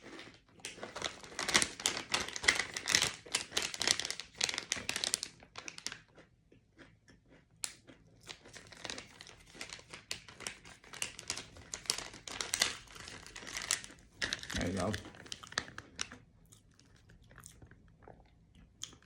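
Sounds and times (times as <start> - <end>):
plastic packaging crinkling: 0.0 - 6.0, 8.3 - 16.2.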